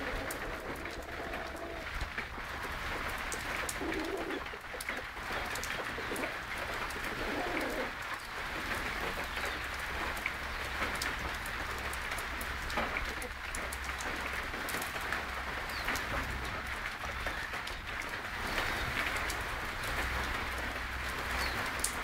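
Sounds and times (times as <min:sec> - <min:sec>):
birds cooing: 0:00.0 - 0:02.2, 0:03.6 - 0:08.0.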